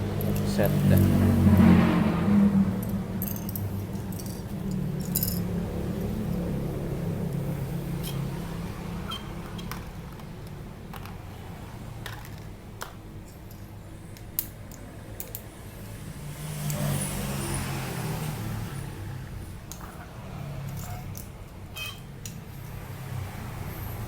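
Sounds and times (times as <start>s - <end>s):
plastic parts clicking and tapping: 9.4s - 11.4s, 12.0s - 15.5s.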